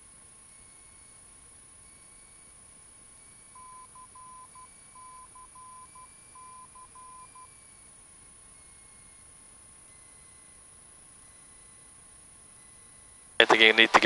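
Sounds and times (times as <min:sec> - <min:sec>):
morse code beeps: 0:01.8 - 0:14.0
radio hiss: 0:13.4 - 0:14.0.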